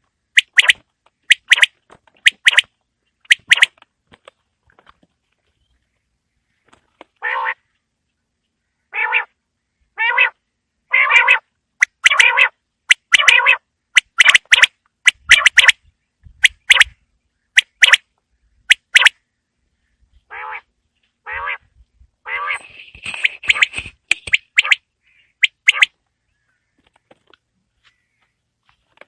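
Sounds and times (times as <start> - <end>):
quail calling: 0.4 - 2.7, 3.3 - 3.7, 7.2 - 7.6, 8.9 - 9.4, 10.0 - 15.8, 16.4 - 16.9, 17.6 - 18.0, 20.3 - 25.9.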